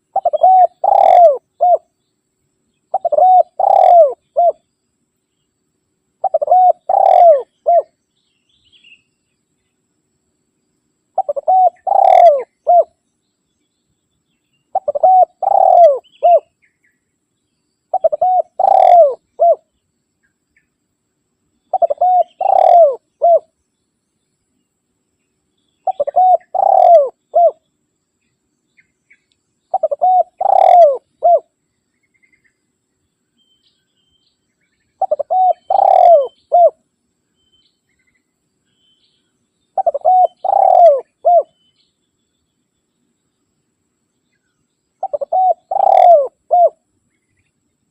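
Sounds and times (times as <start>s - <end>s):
dove cooing: 0.0s - 1.9s, 2.9s - 4.6s, 6.2s - 8.0s, 11.2s - 13.0s, 14.7s - 16.5s, 17.9s - 19.6s, 21.7s - 23.5s, 25.8s - 27.6s, 29.7s - 31.5s, 35.0s - 36.8s, 39.8s - 41.6s, 45.0s - 46.8s.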